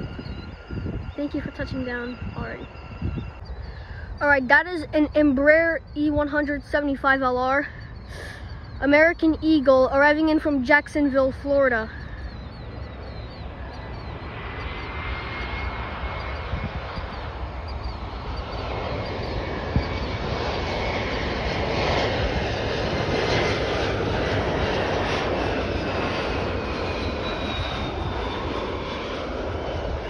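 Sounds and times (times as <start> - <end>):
high jet whine: 0.0 - 30.0
jet landing roar: 0.0 - 30.0.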